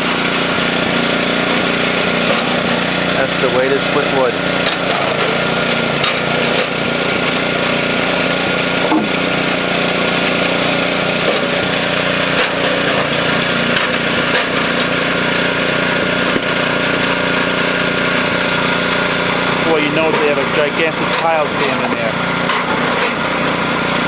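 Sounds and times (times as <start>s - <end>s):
log splitter engine running: 0.0s - 24.0s
sharp knocks of logs splitting: 8.8s - 9.4s.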